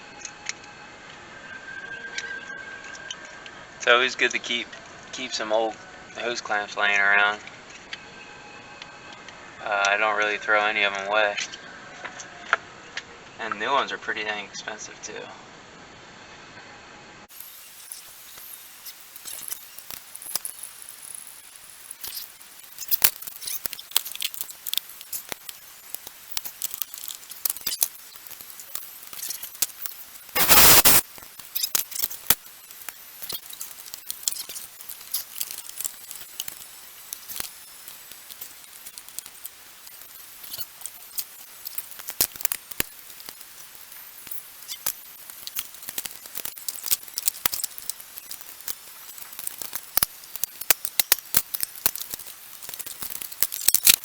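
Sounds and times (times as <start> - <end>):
loud burst of noise: 30.0 - 31.4.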